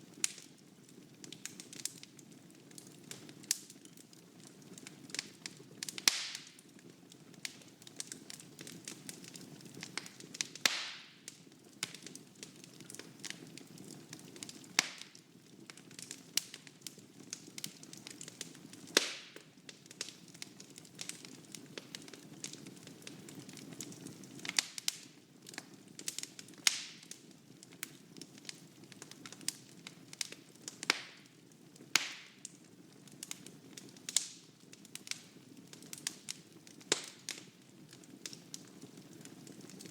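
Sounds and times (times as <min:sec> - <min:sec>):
small fire crackles: 0:00.0 - 0:39.9
loud snapping pops: 0:10.7 - 0:11.0, 0:19.0 - 0:19.3.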